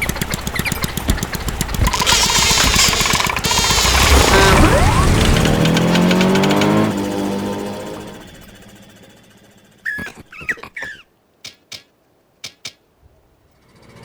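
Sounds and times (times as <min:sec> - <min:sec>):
buzzing propeller motor: 0:00.0 - 0:08.9
short sharp clicks: 0:01.9 - 0:06.8.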